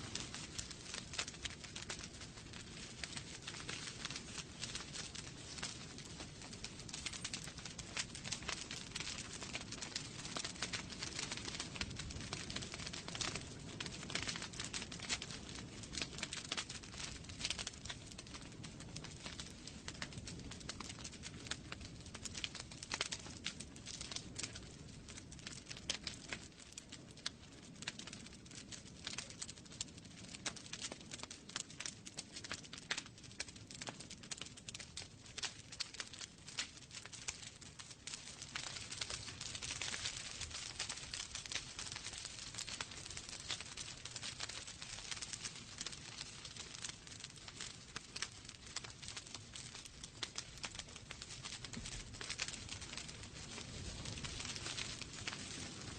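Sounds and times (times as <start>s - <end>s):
wood fire crackling: 0.0s - 55.9s.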